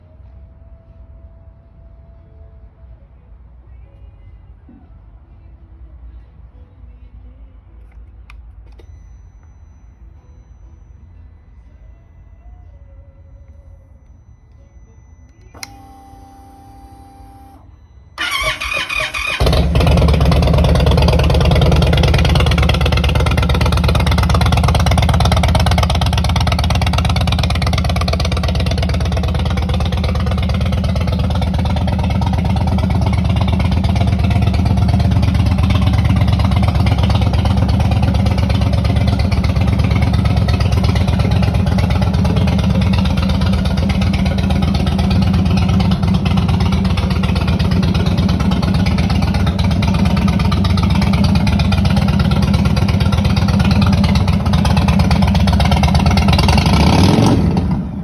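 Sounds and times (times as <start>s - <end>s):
motorcycle starter cranking: 18.2s - 57.4s
motorcycle engine idling: 18.2s - 58.0s.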